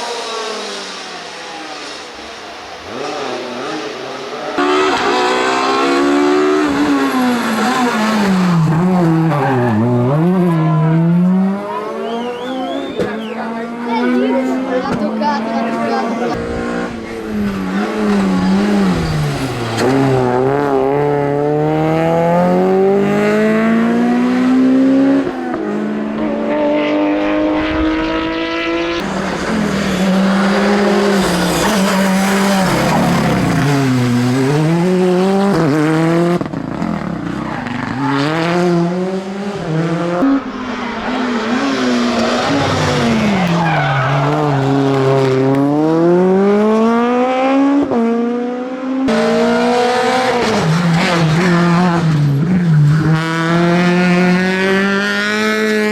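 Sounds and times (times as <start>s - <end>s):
rally car engines revving: 0.0s - 55.9s.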